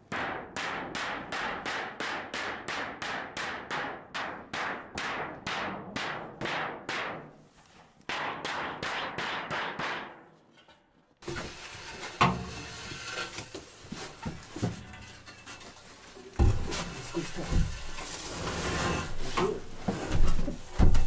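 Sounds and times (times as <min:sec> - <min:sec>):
knocks and thuds: 0:16.3 - 0:18.0, 0:19.4 - 0:21.0.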